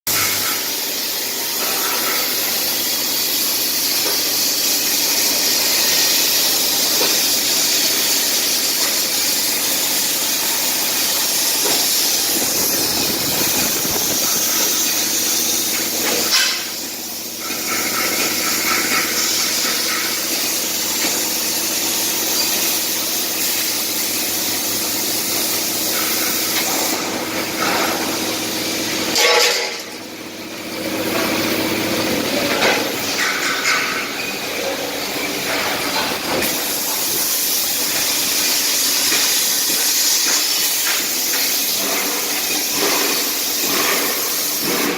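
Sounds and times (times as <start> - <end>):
plasma cutter hissing: 0.1 - 30.0, 31.3 - 44.9.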